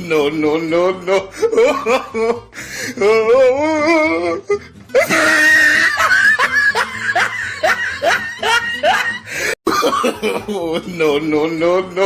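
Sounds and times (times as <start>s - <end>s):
person laughing hard: 1.2s - 2.7s, 5.0s - 11.3s.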